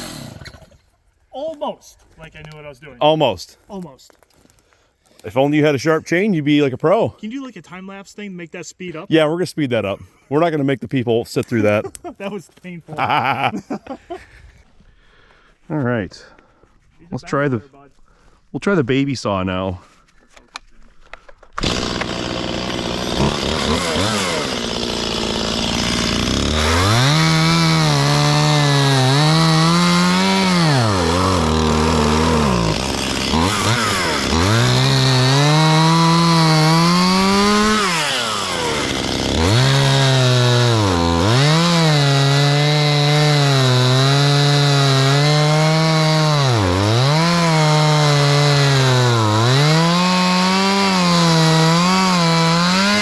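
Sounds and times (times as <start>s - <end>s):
chainsaw revving and cutting wood: 0.0s - 1.0s, 21.6s - 53.0s.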